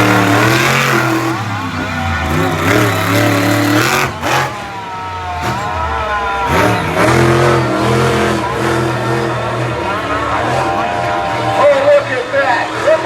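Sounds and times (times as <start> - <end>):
monster truck engines revving: 0.0 - 13.0.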